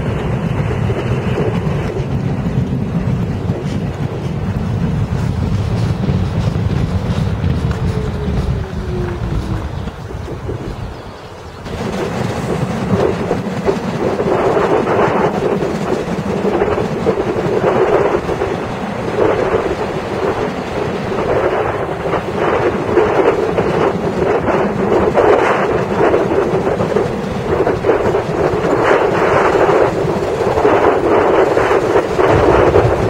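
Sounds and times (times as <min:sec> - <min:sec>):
train wheels rumbling on rails: 0:00.0 - 0:33.0
rattling and clatter: 0:11.6 - 0:33.0.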